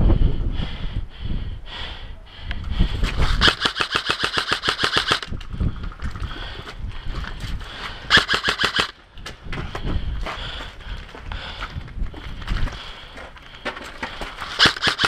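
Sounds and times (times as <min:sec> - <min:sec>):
airsoft rifle firing full-auto: 0:03.4 - 0:05.3, 0:08.1 - 0:09.0, 0:14.6 - 0:15.0.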